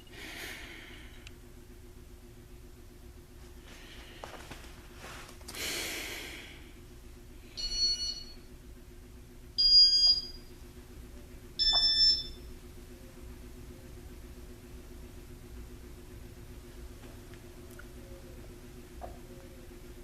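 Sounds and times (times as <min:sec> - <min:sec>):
ceiling fan humming: 0:00.0 - 0:20.0
high electronic beeps: 0:11.6 - 0:12.4.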